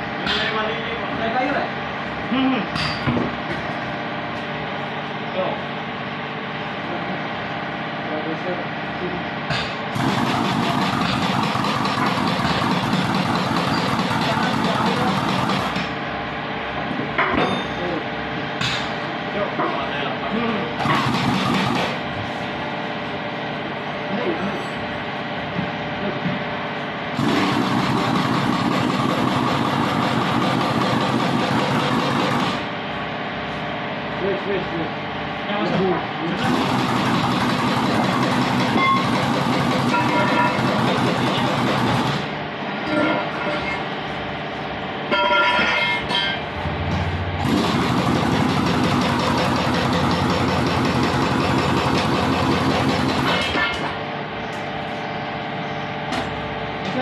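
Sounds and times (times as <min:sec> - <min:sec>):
engine-driven machine running loudly: 0:00.0 - 0:57.0
engine running: 0:27.1 - 0:32.9, 0:36.3 - 0:42.4, 0:46.4 - 0:54.0.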